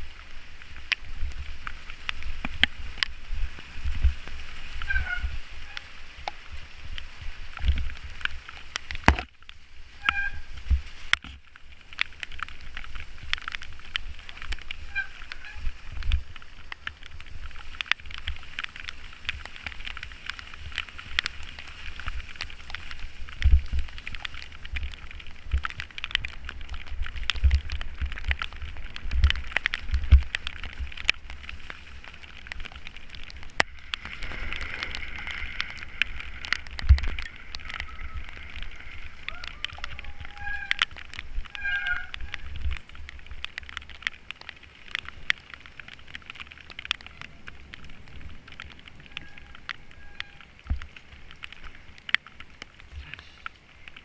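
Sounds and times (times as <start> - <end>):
wind thudding on microphone: 0.0 - 11.4, 12.3 - 44.0
rain hiss: 0.0 - 54.0.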